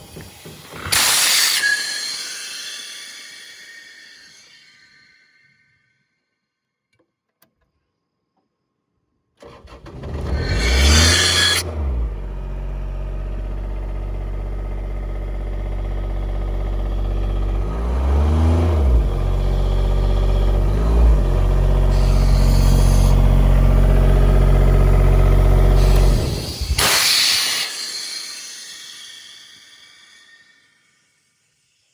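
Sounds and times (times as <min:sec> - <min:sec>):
diesel air compressor running: 0:00.0 - 0:05.0, 0:09.4 - 0:30.6
loud air hiss: 0:00.0 - 0:05.8, 0:10.4 - 0:11.6, 0:21.9 - 0:23.6, 0:25.6 - 0:31.9.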